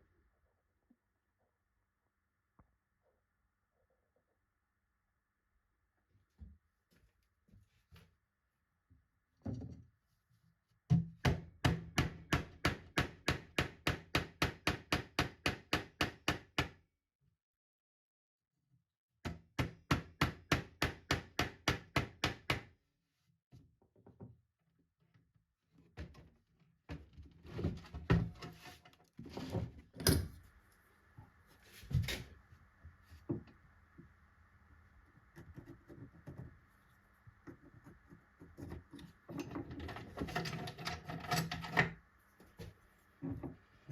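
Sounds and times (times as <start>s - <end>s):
hammering on wood: 10.9s - 16.8s, 19.3s - 22.7s.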